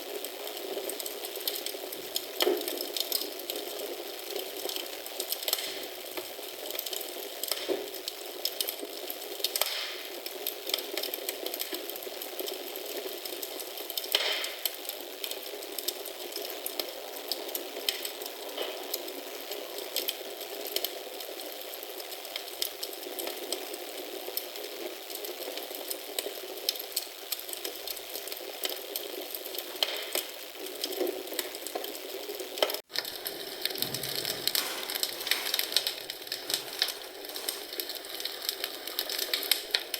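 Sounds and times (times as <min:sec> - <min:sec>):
wood fire crackling: 0:00.1 - 0:16.6, 0:17.2 - 0:39.9
fire popping: 0:32.9 - 0:39.9.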